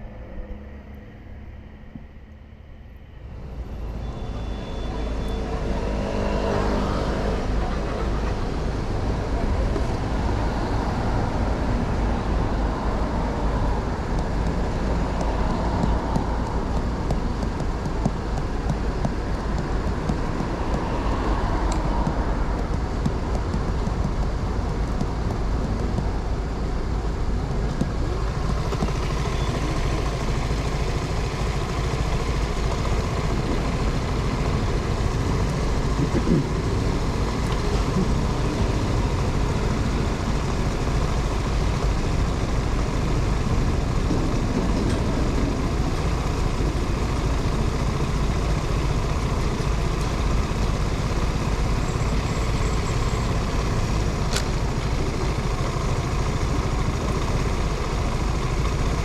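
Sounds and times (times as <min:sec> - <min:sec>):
motorcycle engine: 0:03.9 - 0:59.0
wind rumble on microphone: 0:33.2 - 0:41.0, 0:41.8 - 0:51.5.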